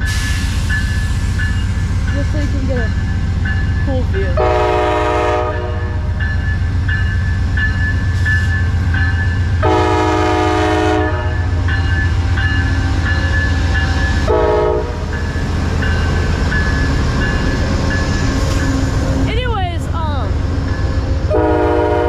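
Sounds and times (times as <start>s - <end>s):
train rumbling by: 0.0s - 22.0s
locomotive horn blasts: 4.4s - 6.2s, 9.6s - 11.6s, 14.2s - 15.0s, 21.3s - 22.0s.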